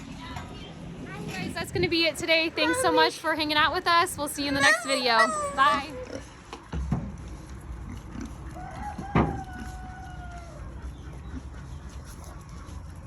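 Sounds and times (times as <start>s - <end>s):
rooster crowing: 8.6s - 10.6s.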